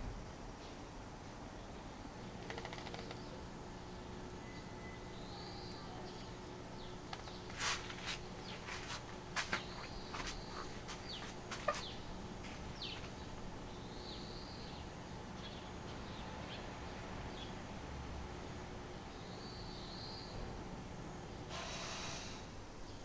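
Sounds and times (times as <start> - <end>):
sharp clicks: 2.4 - 3.4.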